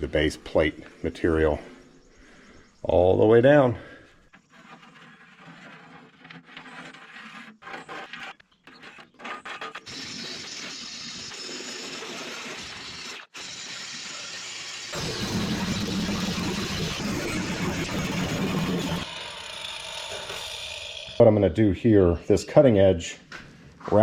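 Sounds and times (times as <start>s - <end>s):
steel scraping and clattering: 4.2s - 13.0s
angle grinder grinding metal: 9.2s - 21.6s.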